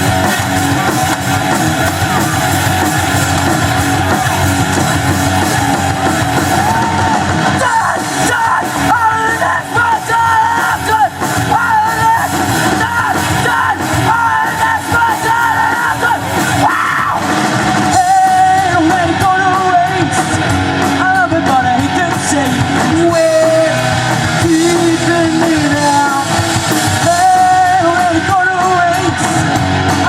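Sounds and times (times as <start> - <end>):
live rock band playing loudly: 0.0 - 30.0
person yelling and singing: 0.0 - 30.0.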